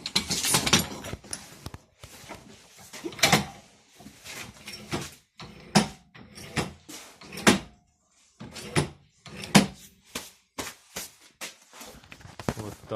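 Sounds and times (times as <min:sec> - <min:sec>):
metal parts clanking: 0:00.0 - 0:01.6, 0:03.0 - 0:03.7.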